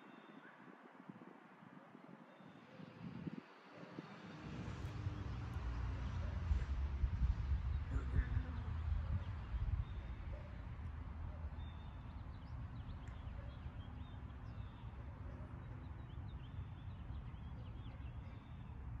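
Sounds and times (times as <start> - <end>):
wild birds chirping: 2.1 - 19.0.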